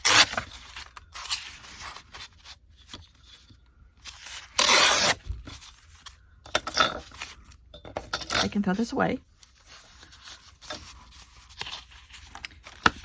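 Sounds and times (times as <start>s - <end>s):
paper tearing: 0.0s - 2.1s, 4.2s - 5.4s.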